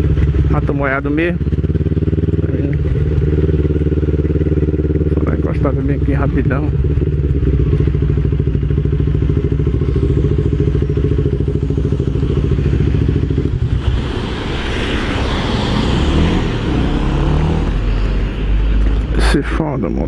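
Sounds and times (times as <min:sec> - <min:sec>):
motorcycle engine idling: 0:00.0 - 0:13.8
rain hiss: 0:13.6 - 0:18.2.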